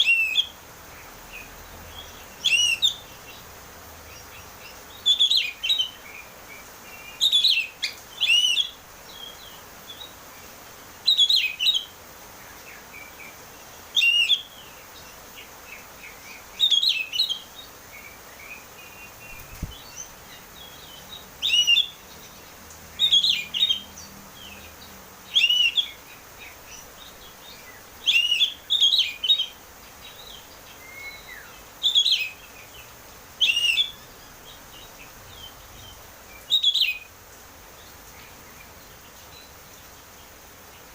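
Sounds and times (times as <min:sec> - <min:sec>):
bird singing whistled phrases: 0:00.0 - 0:00.5, 0:02.4 - 0:03.1, 0:07.2 - 0:09.3, 0:14.0 - 0:14.5, 0:16.6 - 0:17.5, 0:21.4 - 0:22.0, 0:23.0 - 0:23.9, 0:25.3 - 0:26.0, 0:28.0 - 0:29.6, 0:30.8 - 0:32.4, 0:33.4 - 0:34.1, 0:36.5 - 0:37.1.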